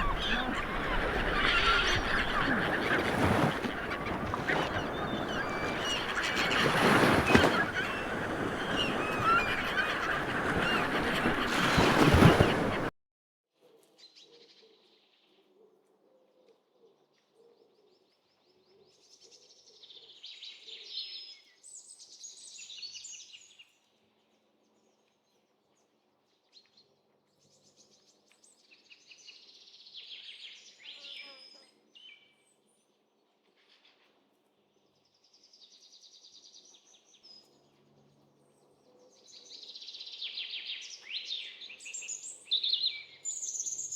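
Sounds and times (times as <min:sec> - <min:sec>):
small birds chirping and singing: 0:00.0 - 0:12.9.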